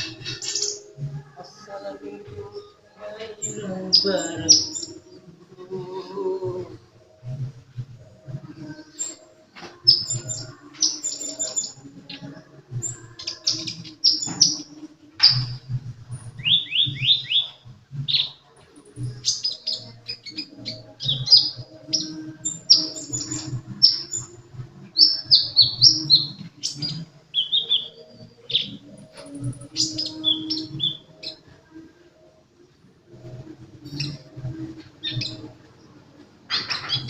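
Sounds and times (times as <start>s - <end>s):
bird chirping and trilling: 0.0s - 1.0s, 3.3s - 5.0s, 16.3s - 24.4s, 25.0s - 31.5s, 35.0s - 35.6s, 36.5s - 37.0s.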